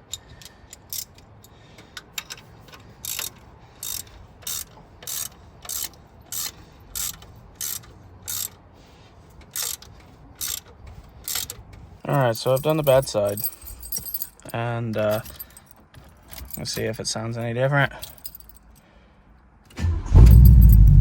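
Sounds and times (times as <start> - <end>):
ratchet wrench clicking: 0.0 - 8.6, 9.3 - 11.8.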